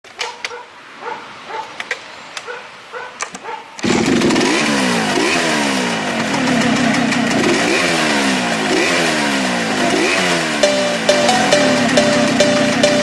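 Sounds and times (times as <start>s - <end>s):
dog barking: 0.2s - 1.8s, 2.4s - 3.8s
chainsaw revving: 3.8s - 10.8s.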